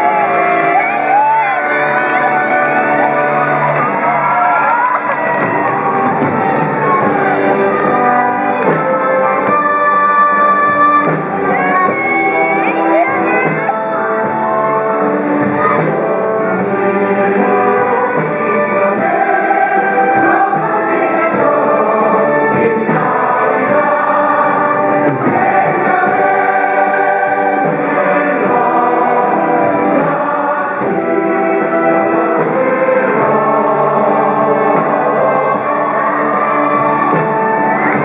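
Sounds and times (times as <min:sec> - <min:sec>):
cast singing with instruments: 0:00.0 - 0:38.0.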